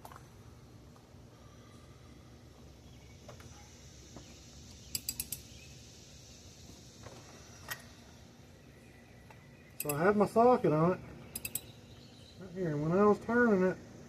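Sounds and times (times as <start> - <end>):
ratchet and socket clicking: 4.9 - 5.5, 9.8 - 10.0, 11.3 - 11.7.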